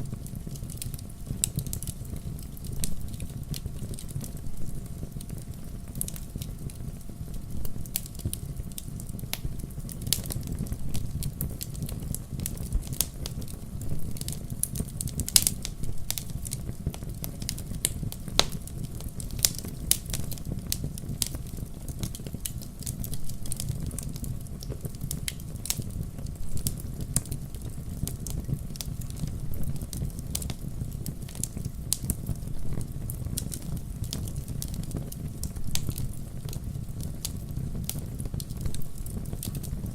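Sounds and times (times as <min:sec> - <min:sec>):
flames rushing: 0:00.1 - 0:39.9
sharp pops and snaps: 0:14.2 - 0:21.4.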